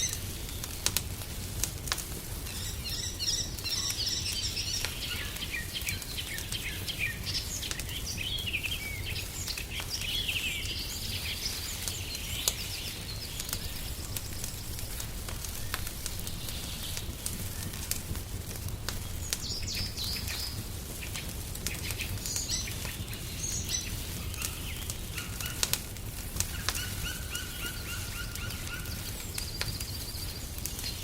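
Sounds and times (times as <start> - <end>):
small birds chirping: 0.0 - 31.0
wood fire crackling and popping: 0.0 - 31.0
steady low rumble: 12.6 - 25.2.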